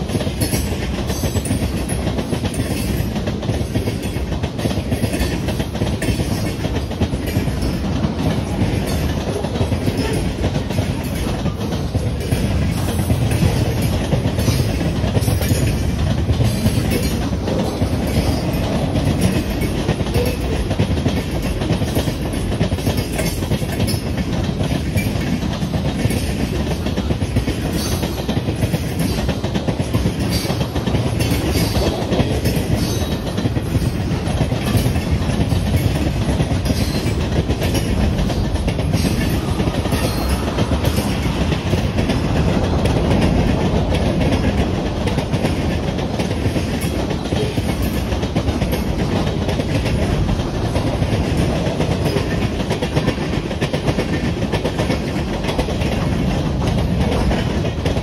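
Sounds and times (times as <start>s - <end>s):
clicking over rail joints: 0.0s - 58.0s
wheels rumbling on rail: 0.0s - 58.0s.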